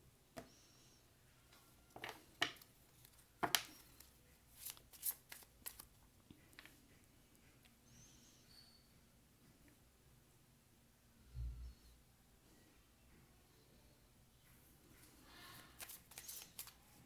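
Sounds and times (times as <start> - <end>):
cards snapping and slapping: 2.4 - 5.8, 15.7 - 16.8.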